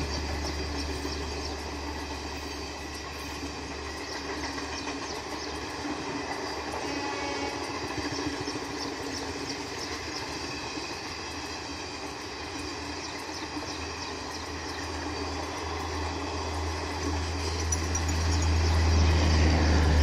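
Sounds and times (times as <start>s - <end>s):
train wheels rumbling and clattering: 0.0s - 20.0s
wheels clacking over rail joints: 0.0s - 20.0s.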